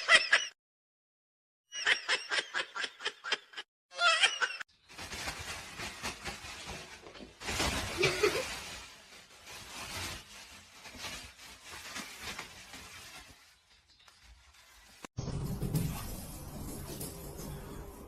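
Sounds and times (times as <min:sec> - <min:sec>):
person laughing: 0:01.8 - 0:04.6, 0:08.0 - 0:08.5.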